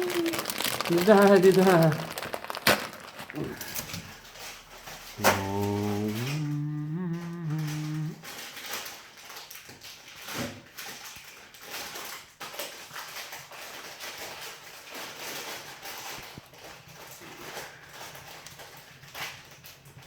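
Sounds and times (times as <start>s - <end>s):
wood fire crackling: 0.0s - 6.5s.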